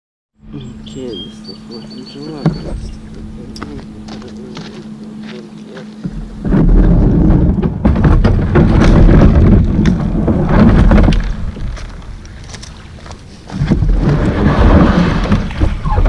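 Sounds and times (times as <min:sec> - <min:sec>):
rumbling and crackling on microphone: 0:00.4 - 0:16.0
sharp knocks and clicks: 0:05.9 - 0:12.8.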